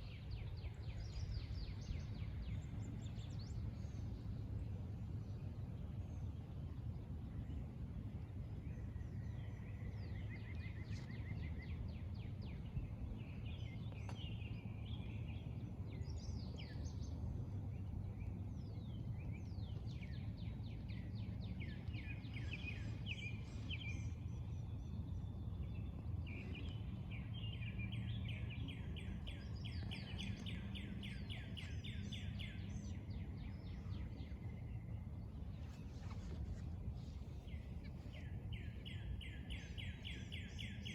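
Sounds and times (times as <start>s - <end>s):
low rumble: 0.0s - 40.5s
songbirds singing: 0.0s - 40.9s.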